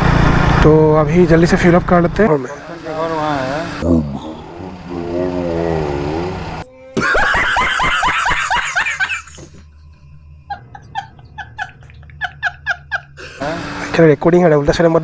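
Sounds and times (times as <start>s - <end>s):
person chuckling: 7.0s - 9.8s, 10.4s - 13.5s
person laughing: 7.0s - 13.6s.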